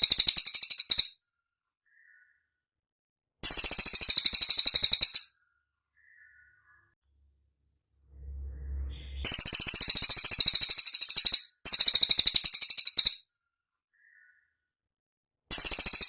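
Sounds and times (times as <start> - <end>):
faint low rumble: 7.1 - 10.1.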